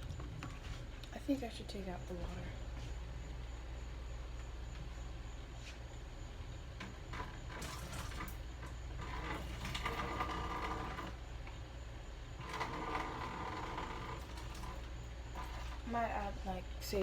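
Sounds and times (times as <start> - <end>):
water pouring from a bowl: 7.5 - 8.4.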